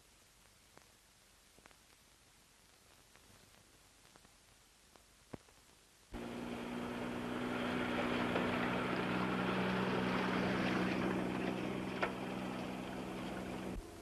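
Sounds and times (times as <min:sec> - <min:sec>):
low hum: 0:06.2 - 0:14.0
vehicle rumbling: 0:06.2 - 0:14.0.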